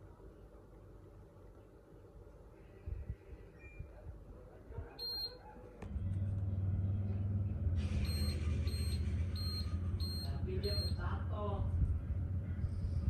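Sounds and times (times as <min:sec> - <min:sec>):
air conditioner humming: 0:00.0 - 0:13.0
air conditioner beeps: 0:05.0 - 0:05.5, 0:07.8 - 0:11.5.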